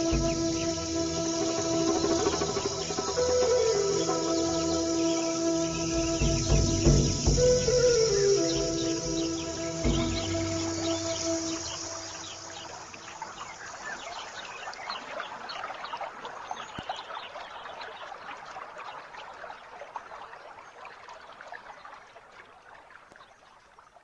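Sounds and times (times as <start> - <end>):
music track: 0.0 - 13.8
water trickling: 0.0 - 24.0.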